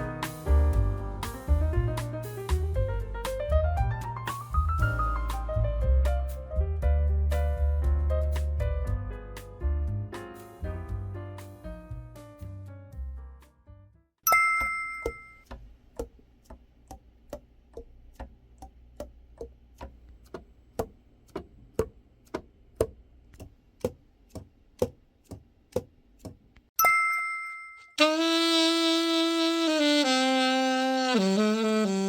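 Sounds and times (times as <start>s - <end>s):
bell-like ding: 14.2s - 15.4s, 26.8s - 28.0s
alto saxophone held note: 28.0s - 32.0s.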